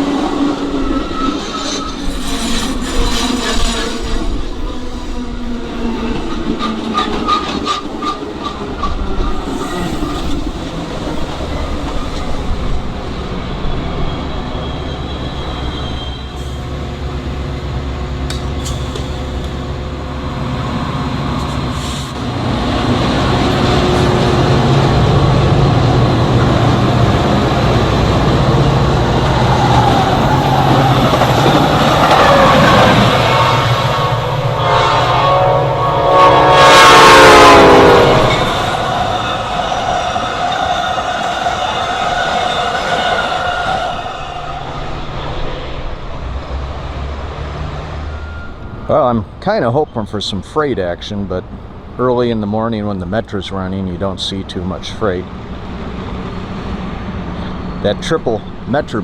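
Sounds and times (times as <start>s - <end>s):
train wheels clattering on rails: 16.4s - 34.3s.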